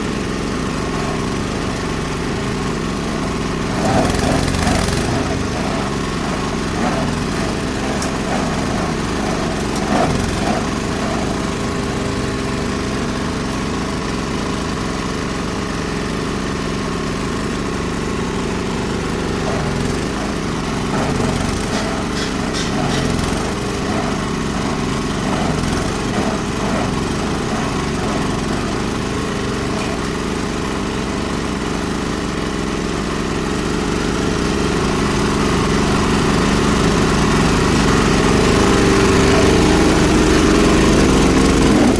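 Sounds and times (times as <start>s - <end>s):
diesel grinder machine running: 0.0s - 41.9s
clattering: 0.8s - 13.7s, 18.8s - 30.2s.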